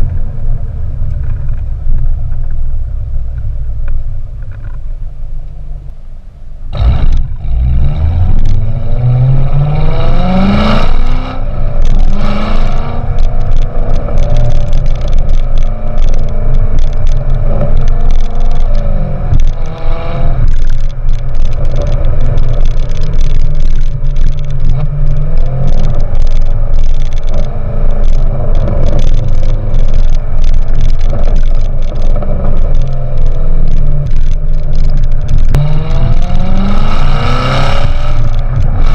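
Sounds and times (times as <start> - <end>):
car engine accelerating hard: 6.7 - 38.9.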